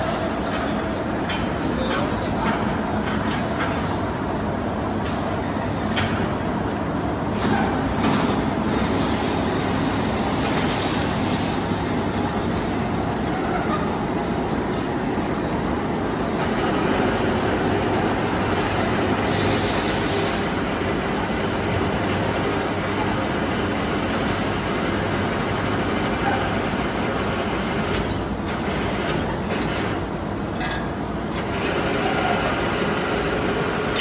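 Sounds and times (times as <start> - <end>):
industrial machinery rumbling: 0.0 - 34.0
hiss bursts: 8.7 - 11.7, 19.2 - 20.6.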